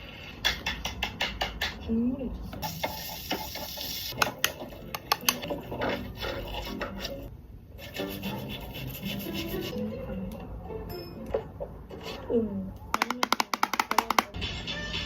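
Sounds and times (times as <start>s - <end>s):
rubbing and scratching of makeup: 5.4s - 9.8s.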